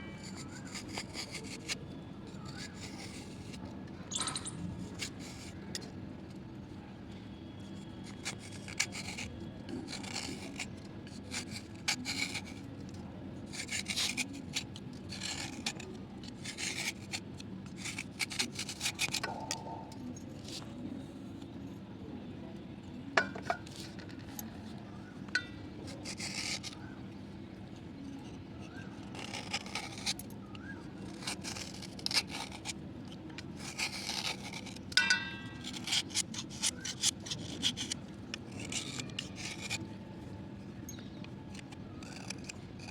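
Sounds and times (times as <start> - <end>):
slate pencils scraping: 0.1 - 3.6, 4.2 - 5.6, 8.0 - 12.7, 13.4 - 20.0, 23.4 - 26.8, 28.2 - 39.9, 41.5 - 42.9.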